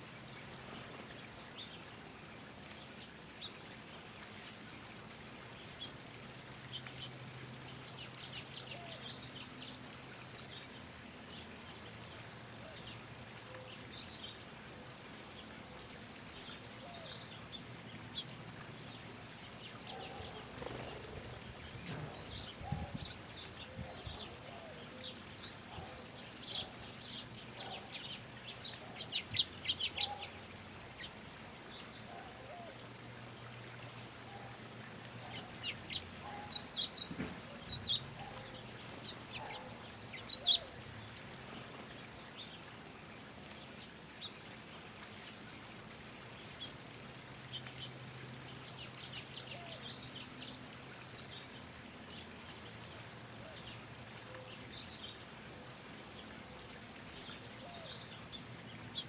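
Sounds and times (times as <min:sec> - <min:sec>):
small birds chirping: 0:15.2 - 0:45.6.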